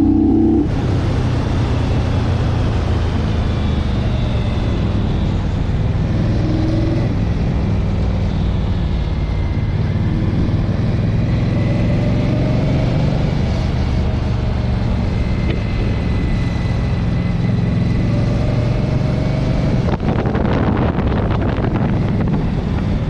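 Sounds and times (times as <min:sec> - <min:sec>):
motorcycle engine running: 0:00.0 - 0:02.6
wind noise on microphone: 0:18.9 - 0:23.0.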